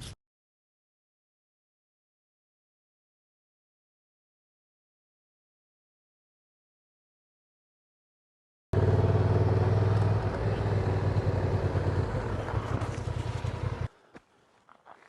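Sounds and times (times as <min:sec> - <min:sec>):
motorcycle engine running: 0:08.8 - 0:13.9.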